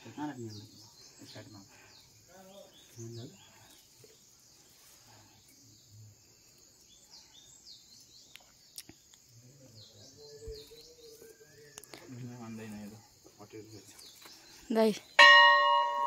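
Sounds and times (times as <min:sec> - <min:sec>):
faint high bird chirps: 0:06.8 - 0:12.6.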